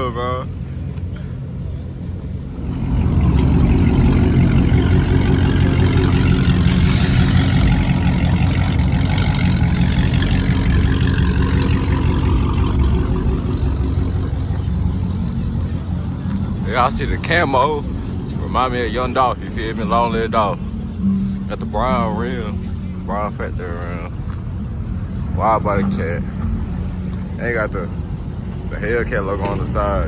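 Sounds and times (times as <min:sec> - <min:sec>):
car engine running loudly: 0:00.0 - 0:30.0
brief high hiss: 0:06.7 - 0:08.4.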